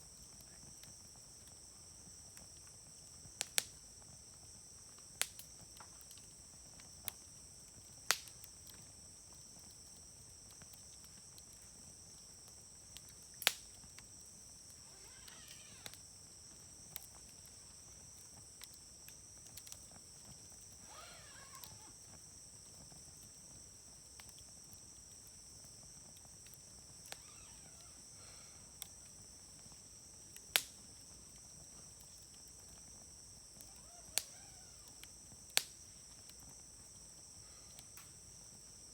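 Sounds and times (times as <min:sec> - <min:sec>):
wood fire crackling and popping: 0:00.4 - 0:22.3, 0:28.7 - 0:36.9
high insect trill: 0:12.8 - 0:23.9, 0:24.7 - 0:38.9.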